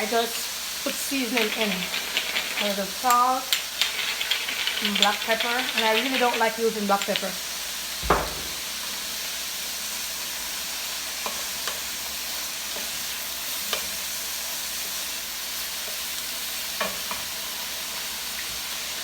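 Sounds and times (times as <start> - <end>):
cabbage sizzling in a pan: 0.0 - 19.0
stirring clicks: 0.9 - 7.4.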